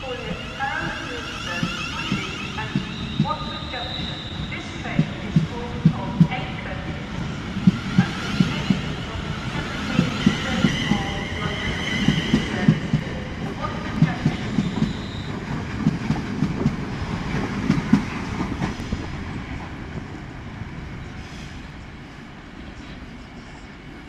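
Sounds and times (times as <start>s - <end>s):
train wheels clattering on track: 7.6s - 20.1s.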